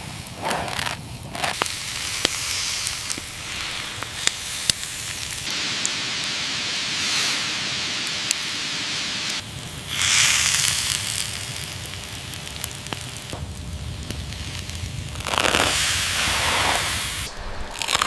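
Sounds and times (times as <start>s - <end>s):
fire snaps: 0.0s - 18.0s
wood fire crackling: 0.0s - 18.0s.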